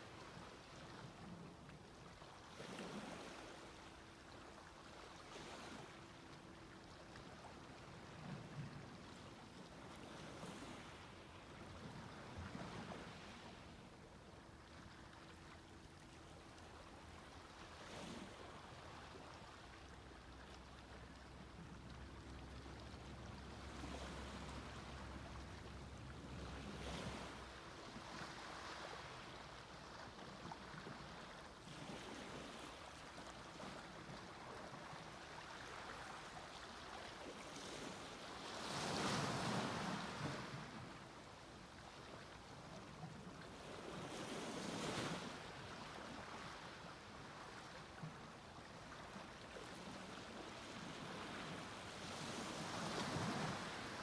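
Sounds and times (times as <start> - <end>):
sea waves breaking on beach: 26.3 - 54.0.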